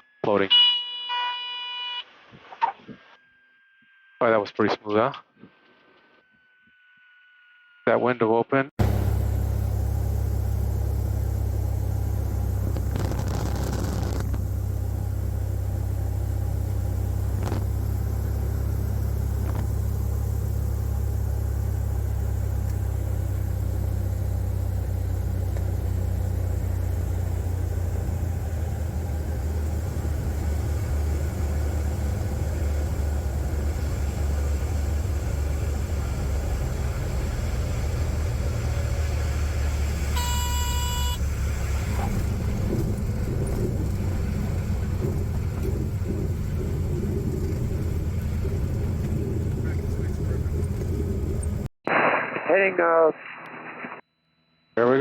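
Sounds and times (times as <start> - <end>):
propeller plane engine droning: 8.8 - 51.7.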